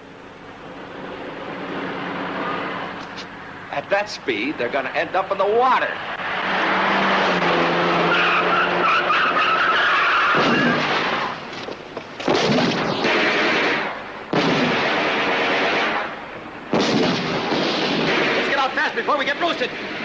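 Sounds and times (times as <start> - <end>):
car engine running hard: 0.0 - 3.9, 4.6 - 12.2
tyres squealing: 4.5 - 12.1
heavy crashes: 10.2 - 18.9.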